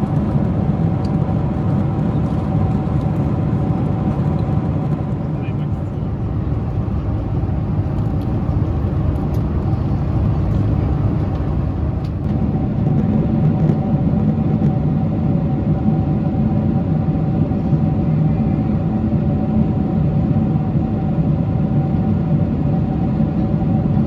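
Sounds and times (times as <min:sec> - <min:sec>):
drone of jet engines: 0:00.0 - 0:24.0
rush of airflow: 0:05.8 - 0:12.7.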